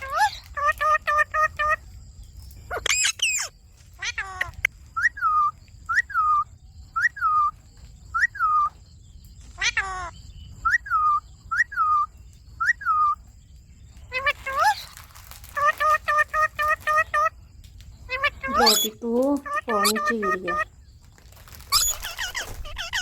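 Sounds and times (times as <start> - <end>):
parrot screeches: 2.7 - 4.7, 9.6 - 10.1, 14.1 - 17.3, 18.1 - 20.6, 21.6 - 23.0
parrot whistled calls: 2.7 - 7.5, 8.1 - 8.7, 9.6 - 13.2, 18.1 - 20.6, 21.7 - 23.0.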